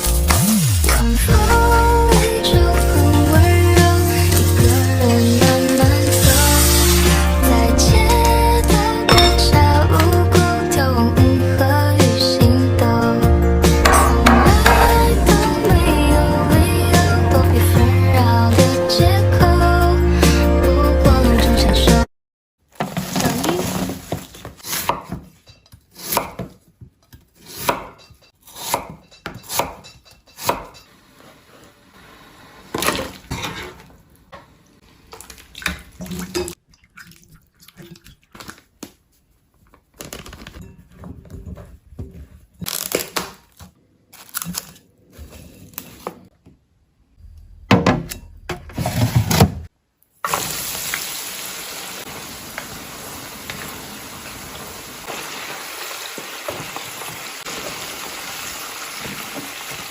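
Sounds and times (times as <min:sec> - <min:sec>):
food sizzling in a pan: 0:03.9 - 0:07.2, 0:50.2 - 0:59.9
utensils and dishes clinking: 0:09.0 - 0:10.2, 0:13.8 - 0:15.8, 0:29.0 - 0:31.0.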